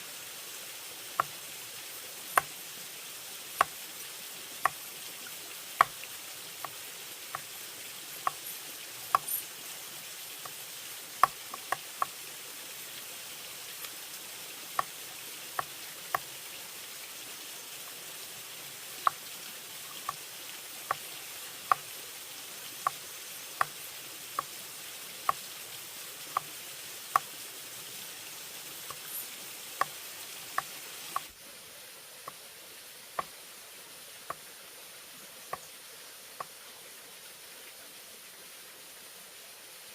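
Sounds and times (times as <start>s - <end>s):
forest ambience hiss: 0.0s - 39.9s
sharp taps on bamboo: 1.2s - 1.4s, 2.4s - 2.6s, 3.6s - 3.8s, 5.8s - 7.5s, 8.2s - 8.4s, 11.2s - 12.1s, 21.7s - 21.9s, 23.6s - 23.8s, 27.1s - 27.3s.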